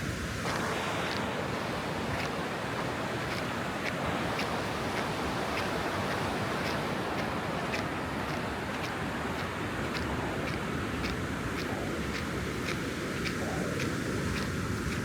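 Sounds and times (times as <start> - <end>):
footsteps in sand: 0.0 - 15.0
ocean surf washing onto beach: 0.0 - 15.0.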